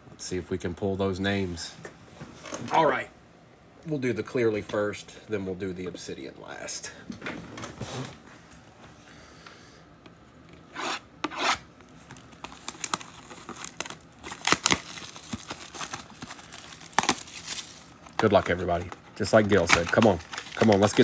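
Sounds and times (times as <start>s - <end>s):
plastic wrap tearing and crinkling: 12.0s - 21.0s.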